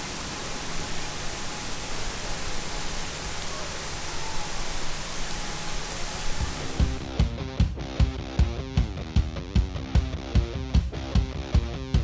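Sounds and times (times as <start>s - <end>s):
heavy rain pouring: 0.0s - 7.2s.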